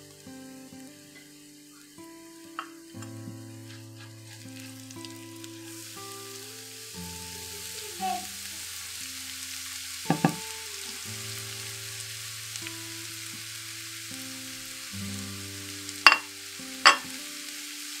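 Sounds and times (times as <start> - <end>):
cabbage sizzling in oil: 0.0 - 18.0
spatula knocking against pan: 10.1 - 10.4.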